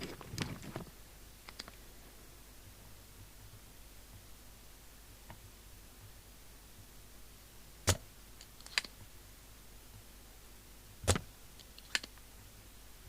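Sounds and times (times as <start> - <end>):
light clicks: 1.4 - 1.8.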